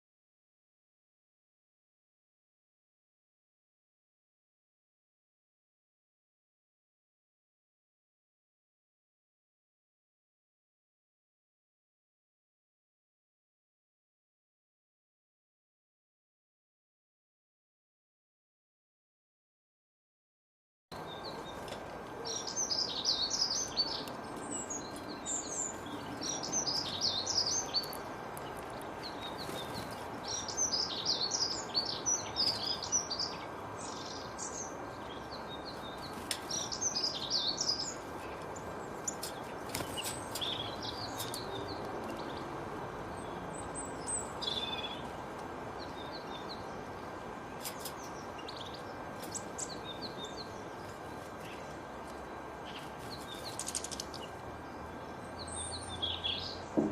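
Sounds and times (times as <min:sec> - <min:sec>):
songbirds singing: 0:20.9 - 0:56.9
steady background hiss: 0:21.0 - 0:56.9.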